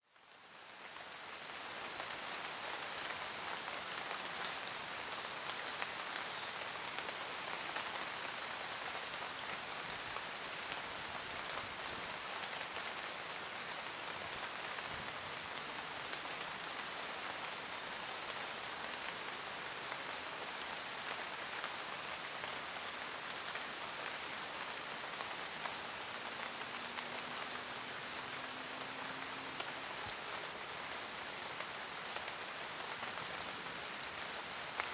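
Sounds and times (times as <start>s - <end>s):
rain hiss: 0.1s - 34.9s.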